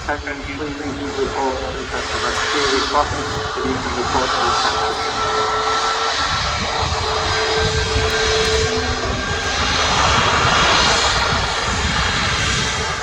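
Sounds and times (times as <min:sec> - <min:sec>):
jet engines rushing and whining: 0:00.0 - 0:13.0.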